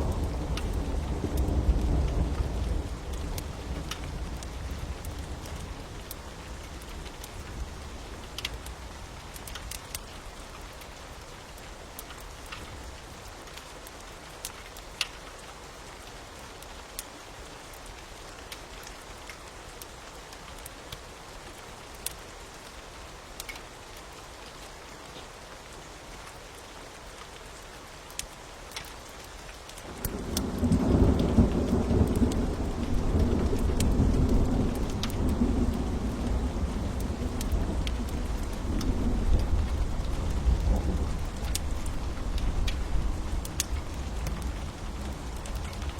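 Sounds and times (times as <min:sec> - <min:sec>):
fire crackling: 0:00.0 - 0:15.2, 0:28.0 - 0:45.9
steady rain: 0:00.0 - 0:45.9
thunder rumbling: 0:29.9 - 0:45.9.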